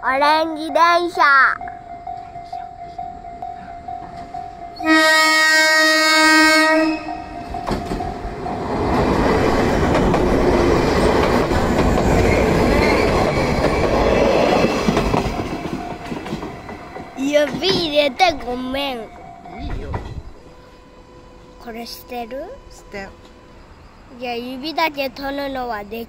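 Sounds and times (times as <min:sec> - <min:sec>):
level crossing bell ringing: 0:00.0 - 0:05.0, 0:07.0 - 0:08.8
train horn: 0:02.2 - 0:08.1, 0:20.4 - 0:23.7
train wheels on rails: 0:06.4 - 0:26.0.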